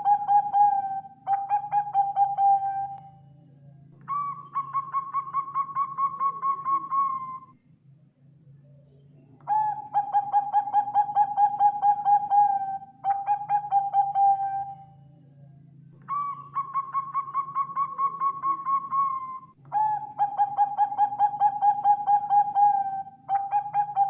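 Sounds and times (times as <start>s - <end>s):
dove staccato cooing: 0.0s - 3.0s, 9.4s - 14.8s, 16.0s - 24.0s.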